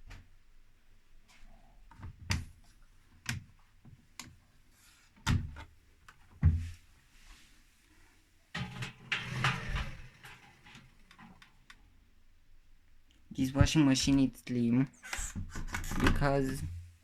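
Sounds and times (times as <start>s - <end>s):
sharp clicks and knocks: 8.6s - 11.9s.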